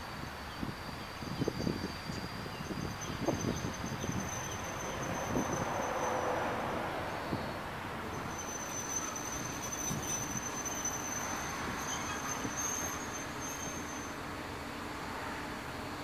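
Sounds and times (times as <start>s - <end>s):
train low rumble: 0.0s - 16.0s
high-pitched squeal: 3.3s - 6.7s, 7.3s - 14.1s.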